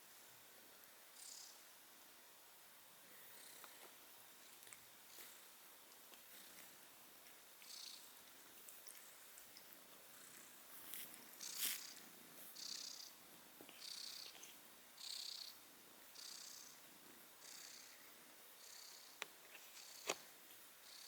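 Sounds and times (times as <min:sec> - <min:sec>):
cat purring: 0:07.6 - 0:15.6, 0:16.2 - 0:18.0, 0:18.6 - 0:20.0.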